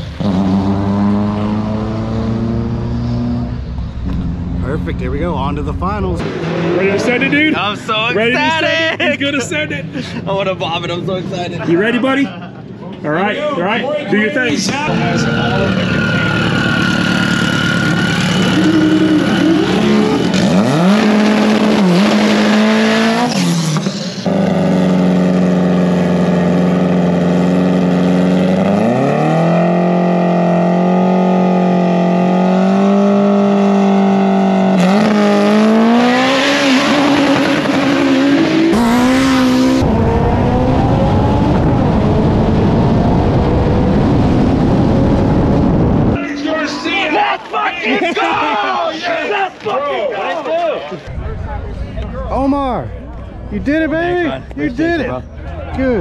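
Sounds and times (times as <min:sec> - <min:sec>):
car engine revving: 0:00.0 - 0:09.7, 0:14.5 - 0:46.6
heavy wind noise: 0:39.8 - 0:46.2.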